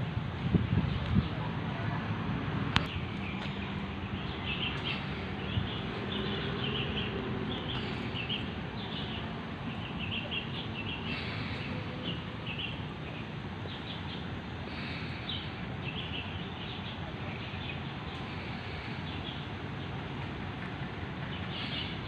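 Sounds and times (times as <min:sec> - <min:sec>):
small birds chirping: 0:02.8 - 0:20.1, 0:21.2 - 0:22.0.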